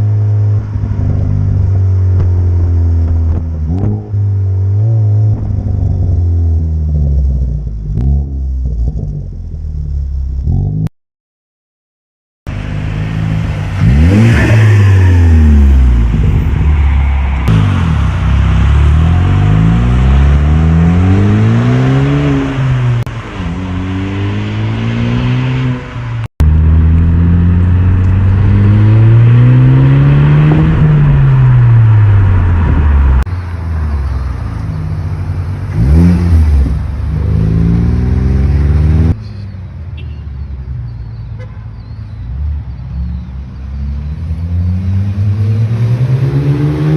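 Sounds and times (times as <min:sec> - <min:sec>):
car engine revving: 0:12.5 - 0:39.2, 0:43.8 - 0:46.9.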